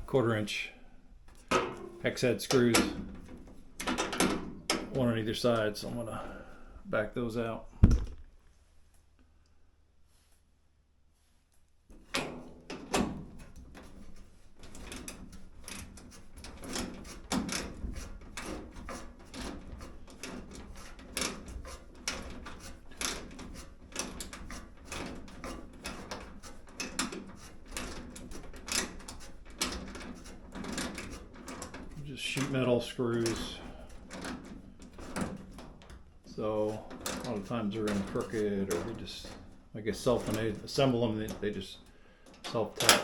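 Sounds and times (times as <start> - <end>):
metal screws clicking and scraping: 13.5 - 40.6.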